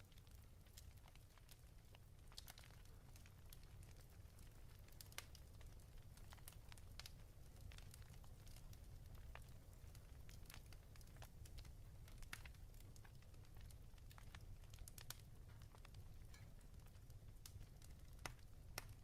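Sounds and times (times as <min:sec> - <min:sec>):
fireplace crackling and popping: 0:00.0 - 0:19.0.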